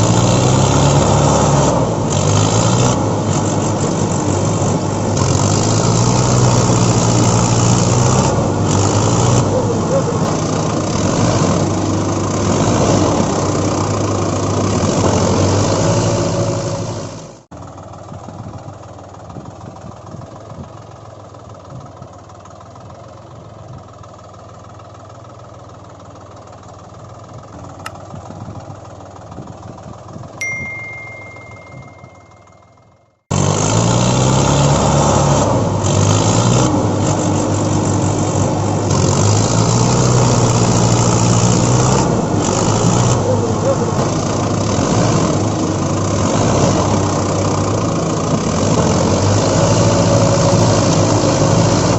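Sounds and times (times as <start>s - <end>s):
vehicle engine idling: 17.2s - 32.8s, 36.8s - 49.2s
steady high tone: 30.4s - 33.0s.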